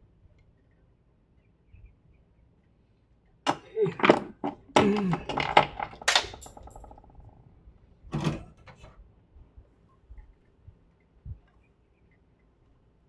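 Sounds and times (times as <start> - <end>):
tools clicking and clattering: 3.5 - 7.3.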